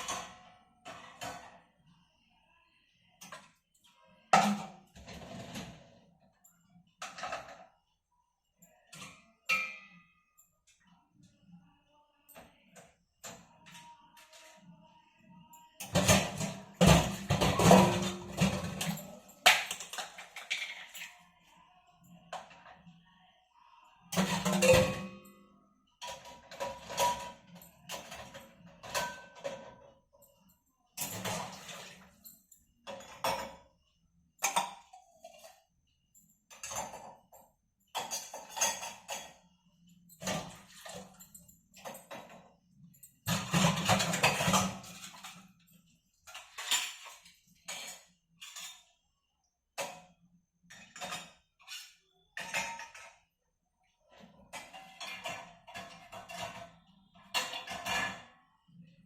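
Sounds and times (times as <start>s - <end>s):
hard objects clattering and knocking: 15.8s - 21.1s, 43.2s - 48.8s.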